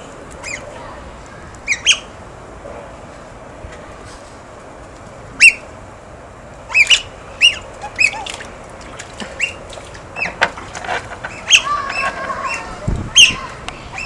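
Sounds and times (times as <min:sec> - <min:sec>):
otters squeaky chirps: 0:01.6 - 0:02.1, 0:06.7 - 0:08.4, 0:09.4 - 0:10.4, 0:11.2 - 0:14.0.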